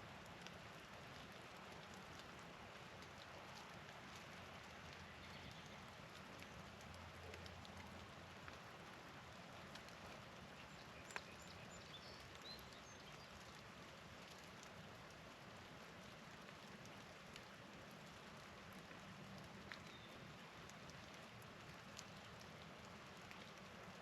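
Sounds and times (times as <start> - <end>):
patter of falling wet snow: 0.0 - 24.0.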